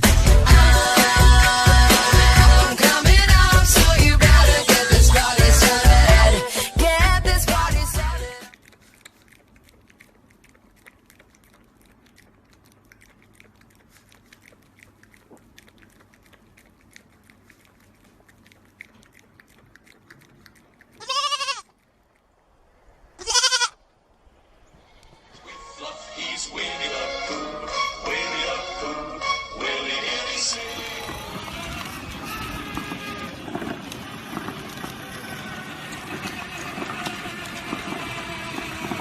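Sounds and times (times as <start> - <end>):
faint clicking: 8.4 - 21.1
goat bleating: 20.9 - 21.8, 23.2 - 23.8, 30.8 - 33.7.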